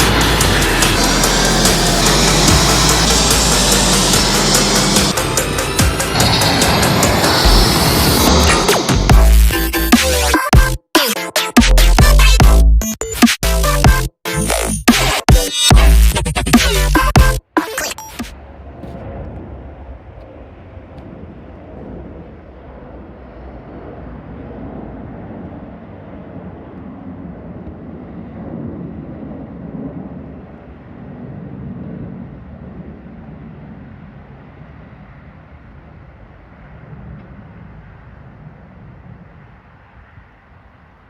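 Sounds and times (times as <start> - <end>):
vehicle rumble: 0.0 - 10.4, 15.7 - 29.2.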